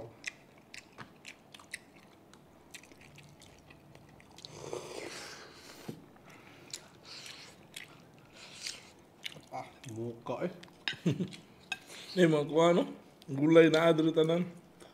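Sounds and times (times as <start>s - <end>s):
biting and chewing: 0.0s - 4.5s.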